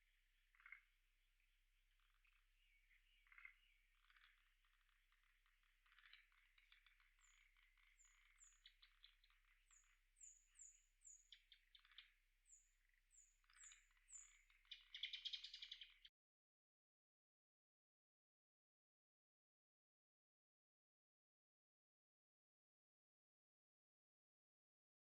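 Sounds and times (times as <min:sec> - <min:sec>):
frogs calling: 0:03.2 - 0:04.9, 0:13.5 - 0:15.9
high thin bird calls: 0:13.5 - 0:16.1.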